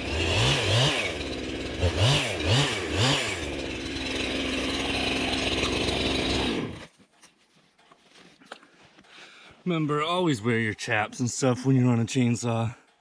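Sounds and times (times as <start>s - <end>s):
chainsaw revving: 0.0s - 6.9s
chainsaw idling: 0.0s - 7.0s.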